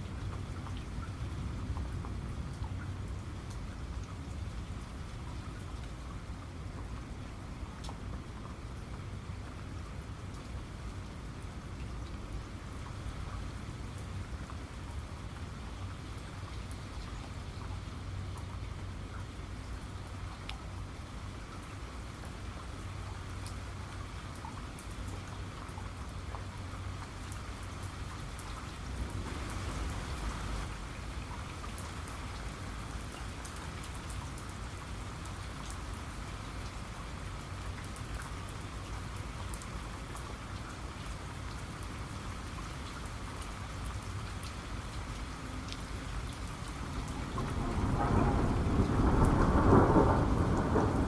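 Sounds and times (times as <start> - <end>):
raindrops hitting a surface: 0.0 - 51.0
steady rain falling: 0.0 - 51.0
deep thunder rumble: 47.1 - 51.0.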